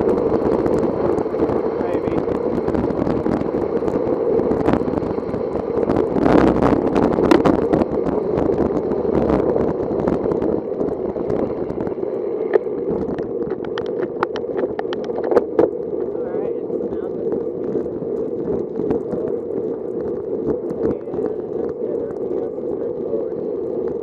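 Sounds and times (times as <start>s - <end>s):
wind rushing over microphone: 0.0s - 24.0s
sharp clicks and knocks: 12.5s - 15.8s.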